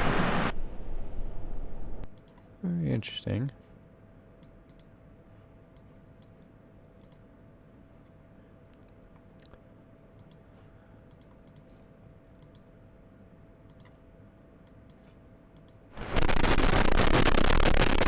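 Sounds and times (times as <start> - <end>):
faint clicks: 2.0 - 2.5, 4.4 - 4.9, 7.0 - 7.3, 10.2 - 12.7, 13.6 - 14.0, 14.6 - 15.8
fire crackling sound effect: 16.0 - 18.0.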